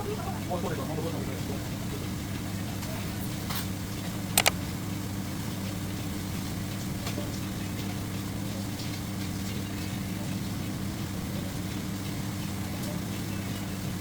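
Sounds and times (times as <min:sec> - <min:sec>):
engine running steadily: 0:00.0 - 0:14.0
sharp clicks: 0:04.4 - 0:04.6.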